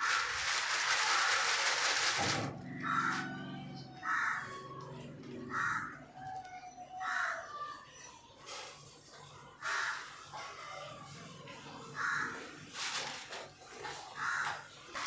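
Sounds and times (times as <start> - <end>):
bird calling in harsh bursts: 0.0 - 4.8.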